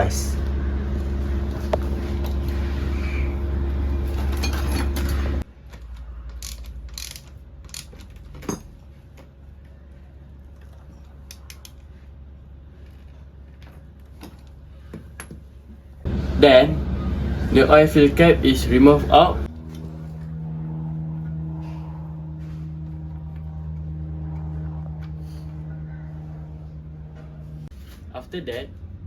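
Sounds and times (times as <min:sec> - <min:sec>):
steady low hum: 0:00.0 - 0:29.0
wrench clicking on metal: 0:06.3 - 0:08.6.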